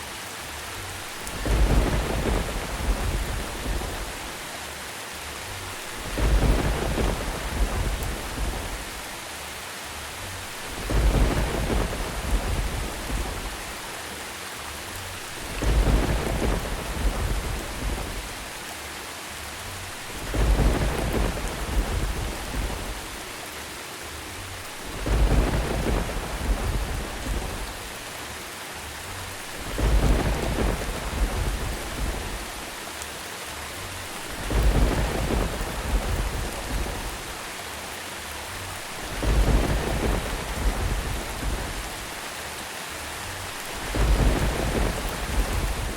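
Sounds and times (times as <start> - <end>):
steady rain: 0.0 - 45.9
thunder rumbles: 1.0 - 4.5, 5.6 - 9.2, 10.4 - 14.0, 15.0 - 18.7, 19.8 - 23.4, 24.6 - 28.1, 29.2 - 32.8, 34.0 - 37.6, 38.6 - 42.3, 43.4 - 45.9.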